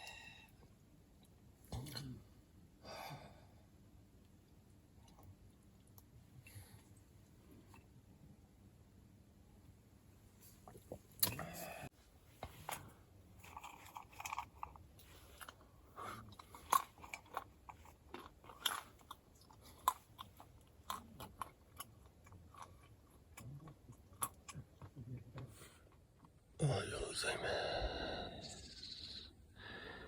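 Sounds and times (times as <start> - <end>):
person chewing and crunching food: 4.5 - 7.9, 12.5 - 27.0.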